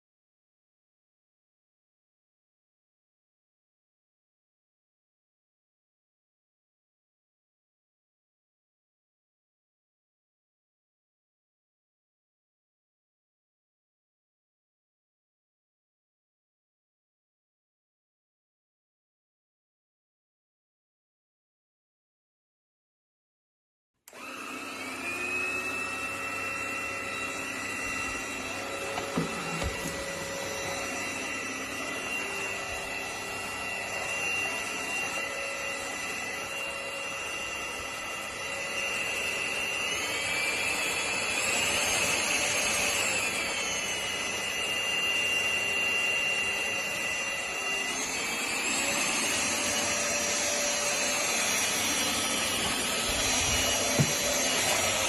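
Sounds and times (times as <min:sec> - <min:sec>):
vacuum cleaner motor whine: 0:24.1 - 0:55.0.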